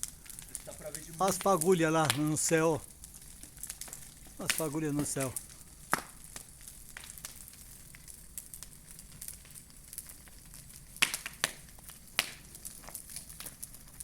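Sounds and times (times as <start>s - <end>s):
steady hiss: 0.0s - 10.1s
bonfire crackling: 0.0s - 14.0s
sharp pops: 0.2s - 2.8s, 3.6s - 6.4s.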